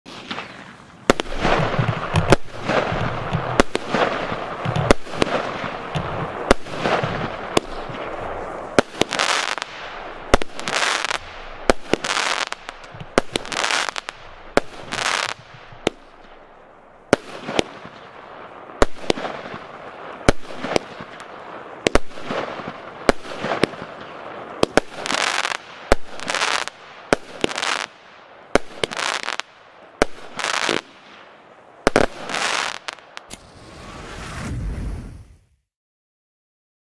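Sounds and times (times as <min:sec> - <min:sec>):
firework shots firing: 0:00.1 - 0:34.8.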